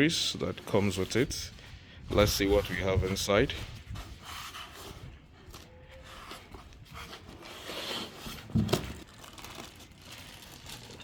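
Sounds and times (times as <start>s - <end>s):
packaging rustling: 5.5s - 11.0s.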